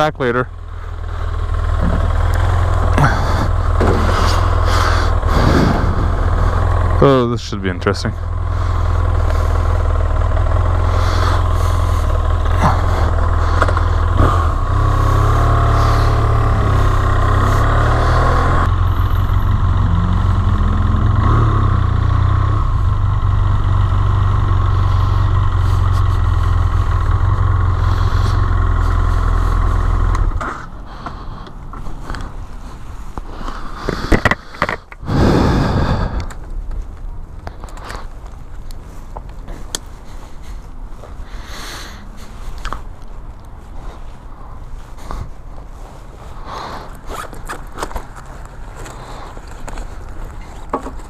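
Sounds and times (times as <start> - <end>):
motorcycle engine running: 0.0 - 33.1
loud bumps: 1.8 - 7.0.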